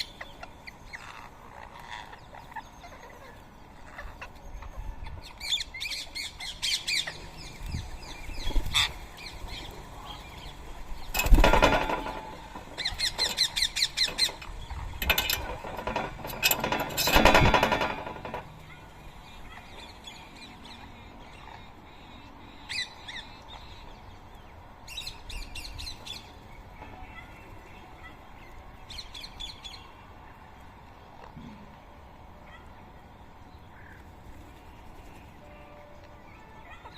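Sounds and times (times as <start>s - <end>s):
parakeets screeching: 0.0s - 10.6s, 11.2s - 23.8s.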